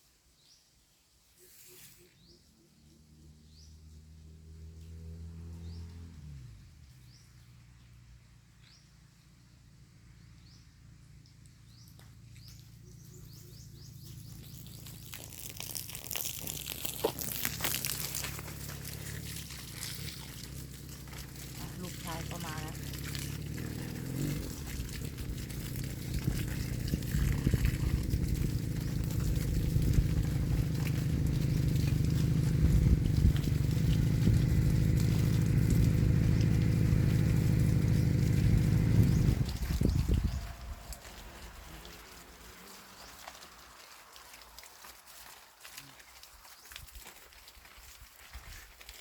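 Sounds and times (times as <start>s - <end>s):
motorcycle engine running: 2.1s - 15.5s, 17.1s - 43.2s
small bird chirping: 10.2s - 24.7s
faint low rumble: 10.4s - 42.0s.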